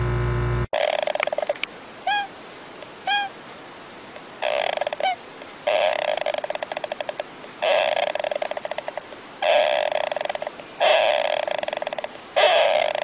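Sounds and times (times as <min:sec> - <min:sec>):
hamster squeaky snoring: 0:00.8 - 0:01.6, 0:04.4 - 0:13.0.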